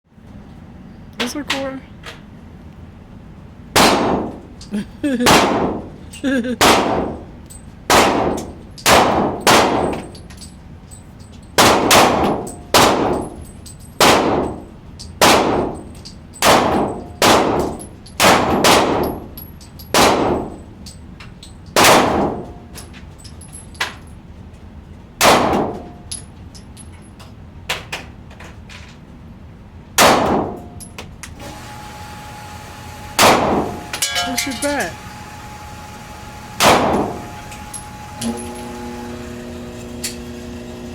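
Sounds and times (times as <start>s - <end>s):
gunshots with ringing tail: 3.8s - 4.3s, 5.2s - 5.8s, 6.6s - 7.3s, 7.9s - 10.0s, 11.6s - 13.2s, 14.0s - 14.6s, 15.2s - 15.8s, 16.4s - 19.2s, 20.0s - 20.5s, 21.8s - 22.4s, 25.2s - 25.8s, 33.2s - 34.3s, 36.6s - 37.2s.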